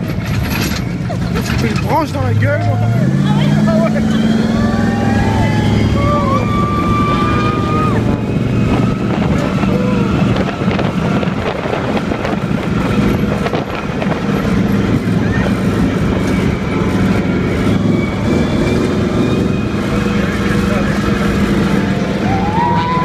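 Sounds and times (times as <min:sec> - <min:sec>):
knocks and rattles: 0:00.0 - 0:02.3
monster truck engine droning: 0:00.0 - 0:23.0.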